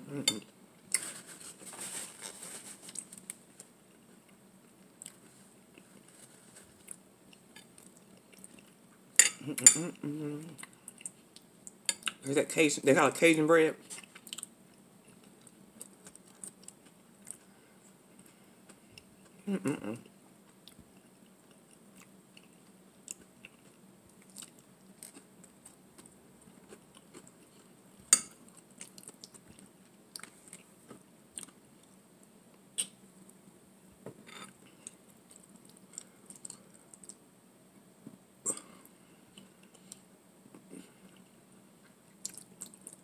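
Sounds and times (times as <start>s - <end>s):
hum-like mouth sound: 9.4s - 10.6s, 19.4s - 20.1s
soft mouth sounds: 9.4s - 12.2s, 19.3s - 20.1s
chewing: 34.3s - 37.2s, 42.2s - 43.0s.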